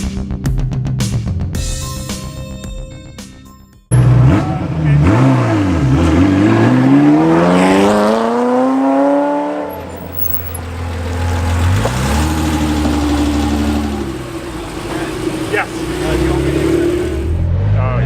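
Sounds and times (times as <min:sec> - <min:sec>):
car engine accelerating: 0:03.9 - 0:18.0.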